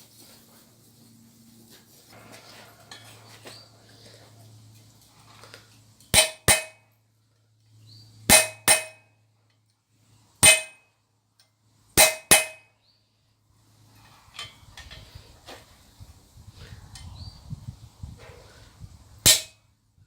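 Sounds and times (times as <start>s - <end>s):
hammer striking anvil: 6.2s - 6.8s, 8.3s - 9.0s, 10.4s - 10.8s, 12.0s - 12.7s, 19.3s - 19.6s.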